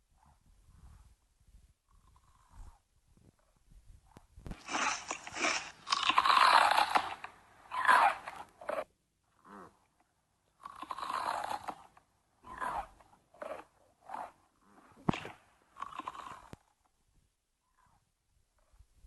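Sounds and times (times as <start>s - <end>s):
crunchy chewing and biting: 4.5s - 8.9s, 10.6s - 16.6s.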